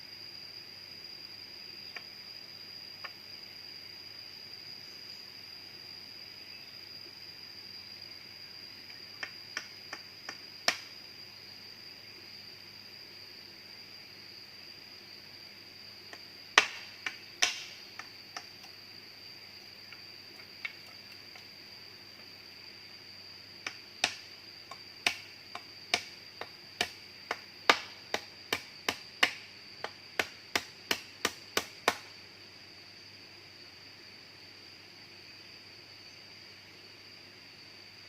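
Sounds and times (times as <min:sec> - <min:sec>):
high-pitched insect drone: 0:00.0 - 0:31.2
hand tool striking wood: 0:16.6 - 0:18.6, 0:23.6 - 0:32.1.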